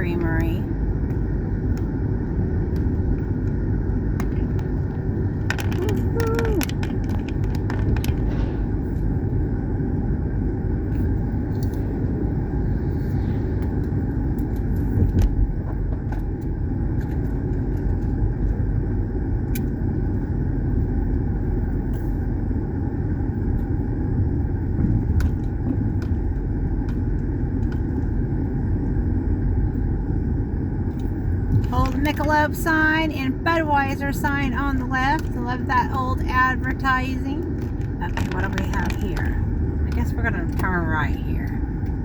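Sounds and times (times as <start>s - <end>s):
car engine rumble: 0.0s - 42.0s
road noise: 0.0s - 42.0s.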